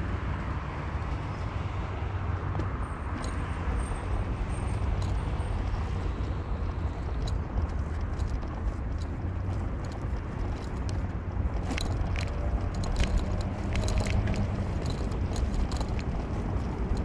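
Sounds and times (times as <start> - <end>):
car engine and tyres rumbling: 0.0 - 17.0
clicking and jangling rattles: 3.1 - 17.0.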